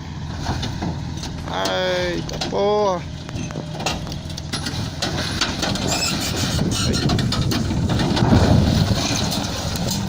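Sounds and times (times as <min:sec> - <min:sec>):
heavy machinery rumbling: 0:00.0 - 0:10.0
clattering and knocking: 0:03.3 - 0:10.0.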